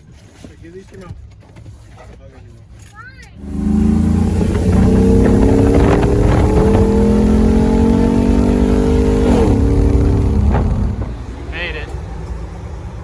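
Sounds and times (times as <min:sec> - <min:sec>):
car engine accelerating: 0:03.4 - 0:13.0.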